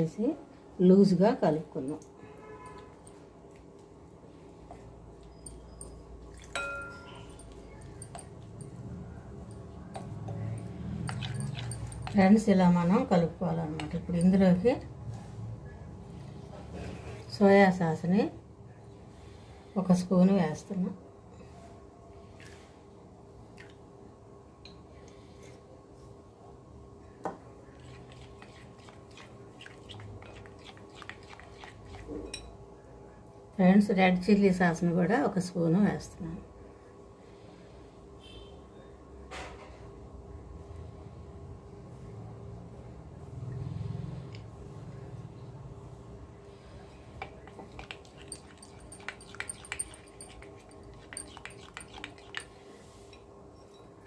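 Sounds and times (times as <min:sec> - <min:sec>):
spoon stirring batter: 0:27.5 - 0:32.5, 0:46.8 - 0:54.0.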